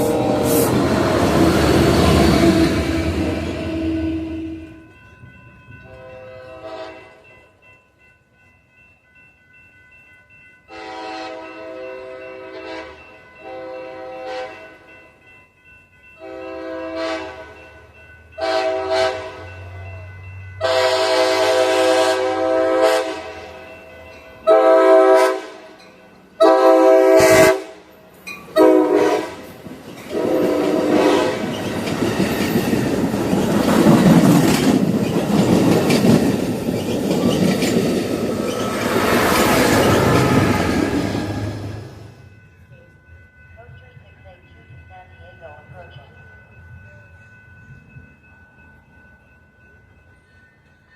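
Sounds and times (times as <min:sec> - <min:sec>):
train horn blasts: 0:00.0 - 0:04.8, 0:05.8 - 0:07.2, 0:10.7 - 0:14.8, 0:16.2 - 0:17.6, 0:18.4 - 0:19.6, 0:20.6 - 0:23.6, 0:24.4 - 0:25.8, 0:26.4 - 0:27.9, 0:28.5 - 0:29.5, 0:30.1 - 0:31.6
train passing with wheel clatter: 0:00.0 - 0:50.9.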